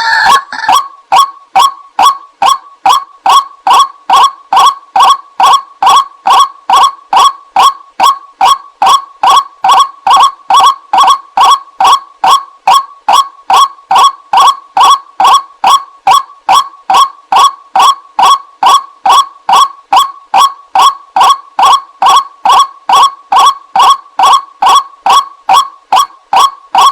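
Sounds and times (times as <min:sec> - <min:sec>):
waterhen calling: 0:00.0 - 0:03.8.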